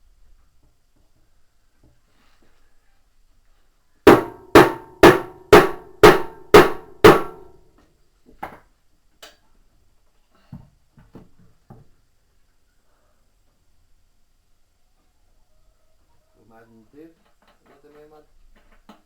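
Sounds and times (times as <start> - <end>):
hammer blows on metal: 4.1 - 7.6.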